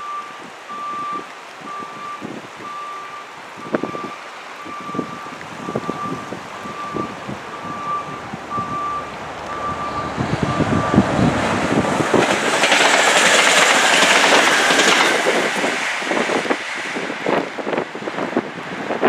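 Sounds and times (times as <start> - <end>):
reversing alarm beeping: 0.0 - 11.3
train passing at speed: 5.8 - 19.0.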